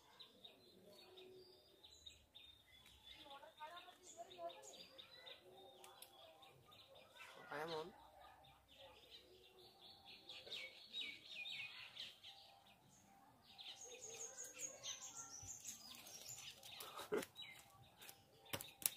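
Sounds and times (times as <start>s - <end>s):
small birds chirping: 0.0s - 18.9s.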